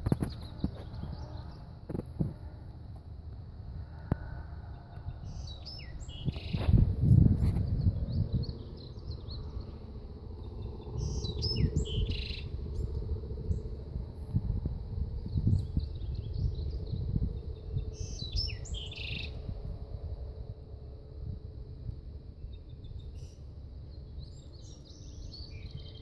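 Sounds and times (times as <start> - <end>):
small songbird singing: 0.0 - 1.7, 4.2 - 13.8, 15.2 - 19.4, 22.3 - 26.0
low rumbling noise: 0.0 - 26.0.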